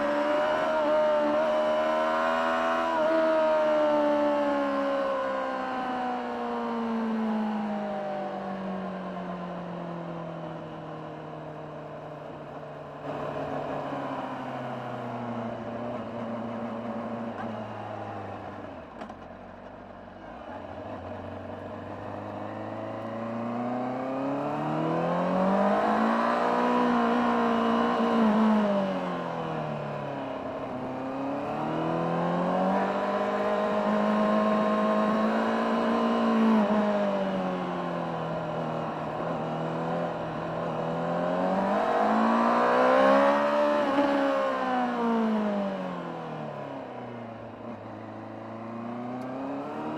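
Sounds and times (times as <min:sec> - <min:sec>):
motorcycle engine revving: 0:21.9 - 0:46.7, 0:47.8 - 0:49.9.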